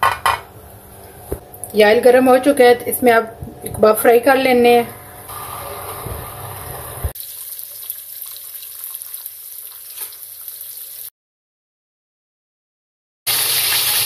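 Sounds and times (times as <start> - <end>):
meat sizzling in a frying pan: 13.3 - 14.0.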